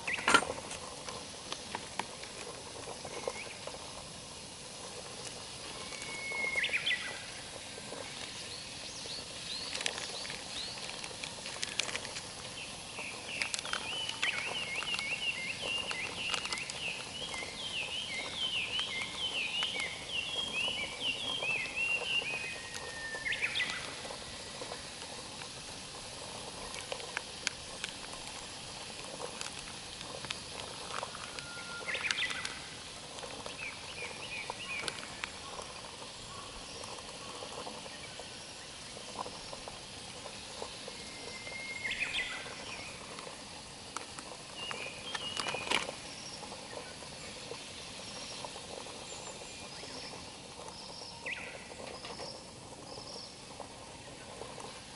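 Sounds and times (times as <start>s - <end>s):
steady outdoor hiss: 0.0s - 54.9s.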